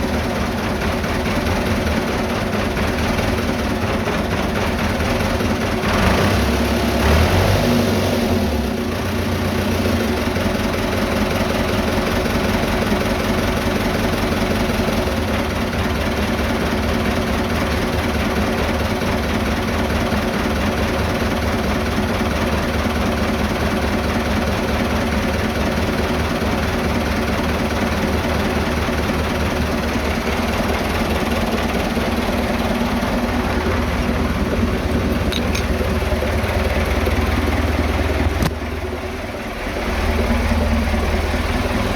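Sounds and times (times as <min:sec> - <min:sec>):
diesel tractor engine idling: 0:00.0 - 0:07.2, 0:08.2 - 0:41.9.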